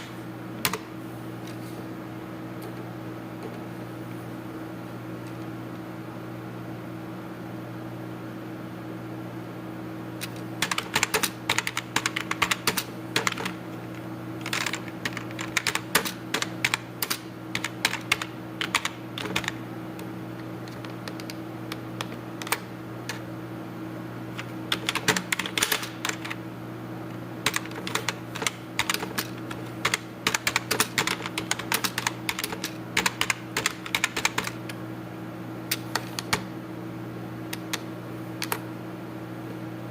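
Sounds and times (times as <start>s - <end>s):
steady low hum: 0.0s - 39.9s
computer keyboard typing: 10.2s - 19.6s, 20.4s - 23.2s, 24.4s - 26.4s, 27.4s - 34.7s.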